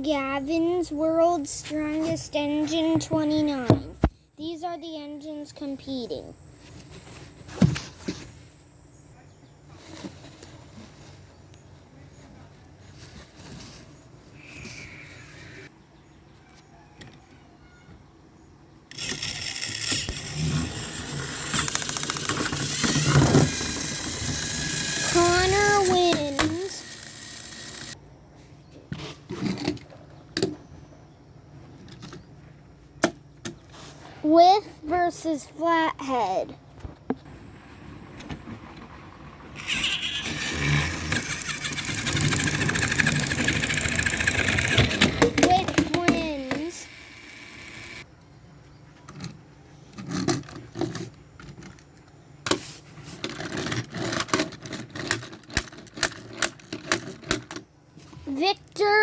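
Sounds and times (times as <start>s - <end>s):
plastic toy trains rattling: 18.9s - 28.0s, 38.5s - 48.0s, 53.1s - 57.6s
toy train motors whirring: 18.9s - 28.0s, 39.2s - 48.1s, 53.1s - 57.6s
engine starting and running: 37.3s - 45.6s.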